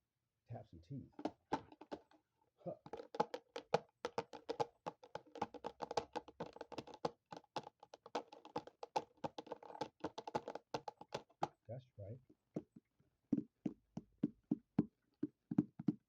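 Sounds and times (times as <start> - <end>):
tapping on teeth: 2.8 - 11.6.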